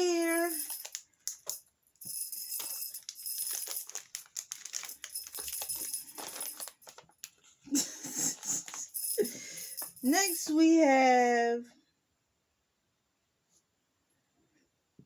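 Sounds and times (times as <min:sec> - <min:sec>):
plastic packets crinkling: 0:00.0 - 0:07.5, 0:08.1 - 0:10.1
small clicks and rattles: 0:00.2 - 0:07.5.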